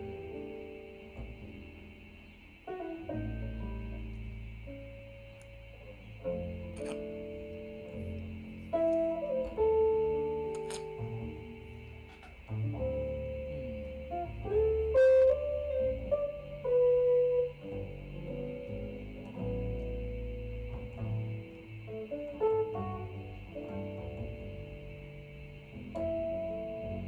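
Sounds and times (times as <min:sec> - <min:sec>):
jazz music from loudspeakers: 0:02.7 - 0:27.0.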